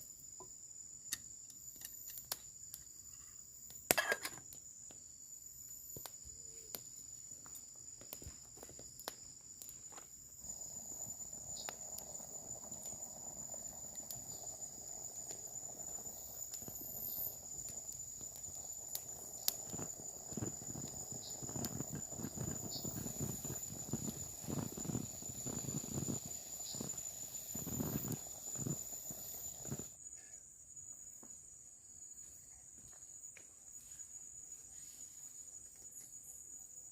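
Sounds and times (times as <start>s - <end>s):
soft hiss: 4.5s - 30.0s
high-pitched insect drone: 9.8s - 30.0s.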